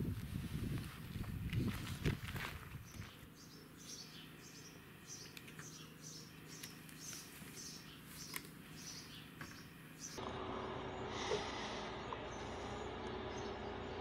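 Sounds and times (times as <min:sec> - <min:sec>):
faint small bird chirping: 0:02.8 - 0:10.2.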